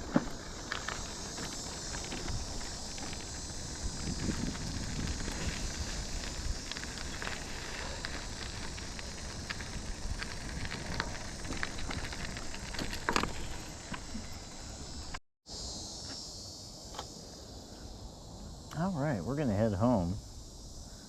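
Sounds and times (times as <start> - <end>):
wind rumble and rustle: 0.0 - 15.2
insects chirping: 0.0 - 21.0.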